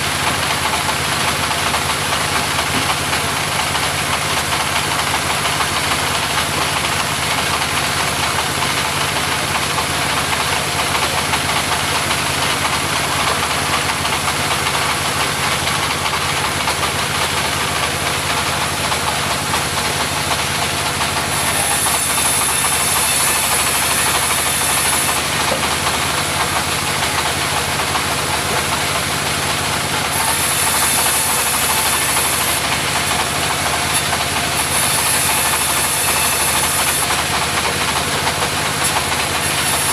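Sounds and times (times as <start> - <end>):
mobile sawmill engine running: 0.0 - 39.9
saw cutting timber hiss: 21.2 - 25.3, 29.9 - 37.2, 38.6 - 39.9.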